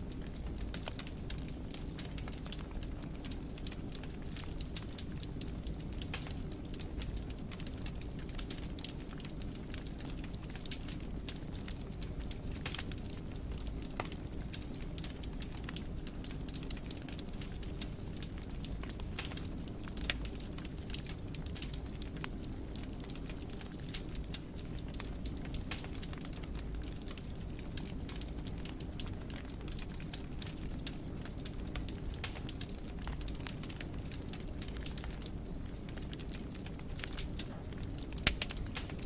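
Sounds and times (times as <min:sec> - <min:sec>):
fire crackling and popping: 0:00.0 - 0:39.0
low rumble of flames: 0:00.0 - 0:39.0.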